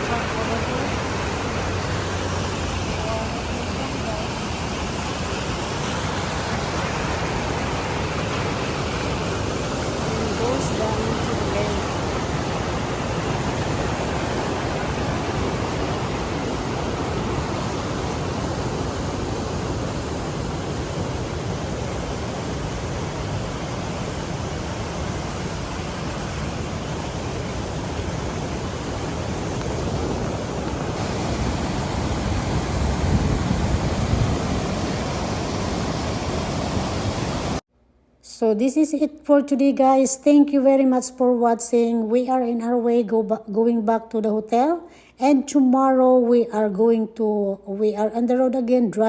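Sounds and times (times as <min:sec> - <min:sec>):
waterfall rushing: 0:00.0 - 0:37.6.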